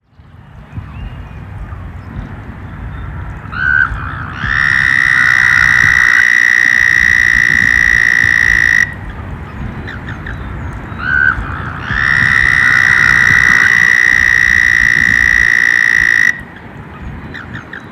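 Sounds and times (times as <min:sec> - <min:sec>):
frog trilling: 0:03.5 - 0:09.0, 0:11.0 - 0:16.5
short low frog note: 0:04.4 - 0:09.0, 0:11.8 - 0:16.4.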